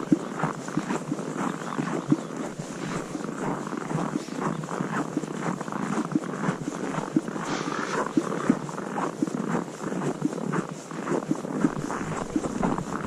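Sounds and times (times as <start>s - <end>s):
boots crunching through snow: 7.5s - 8.6s.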